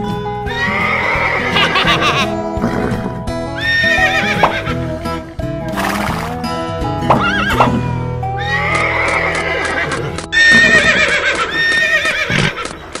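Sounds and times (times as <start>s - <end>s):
background music: 0.0s - 13.0s
horse whinnying: 0.5s - 4.8s, 8.4s - 12.8s.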